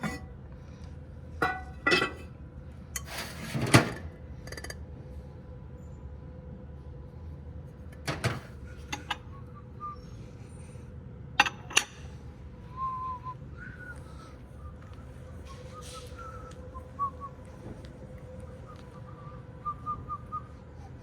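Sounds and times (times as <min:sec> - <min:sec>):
steady low hum: 0:00.0 - 0:21.0
objects clinking and knocking: 0:01.4 - 0:02.3
faint short whistle-like notes: 0:09.1 - 0:10.8, 0:12.7 - 0:17.7.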